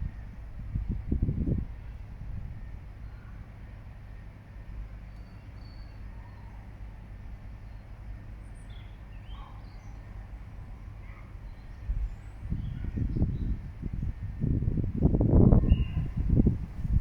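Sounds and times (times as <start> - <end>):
low outdoor rumble: 0.0 - 17.0
faint high bird chirps: 5.1 - 6.6.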